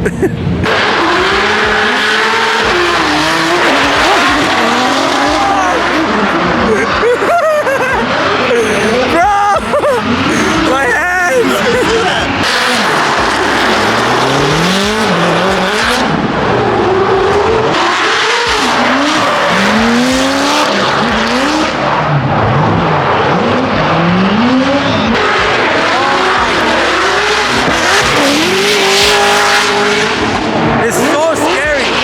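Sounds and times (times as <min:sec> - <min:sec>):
tyres screeching: 0:00.0 - 0:21.9
car engines revving: 0:00.0 - 0:32.0.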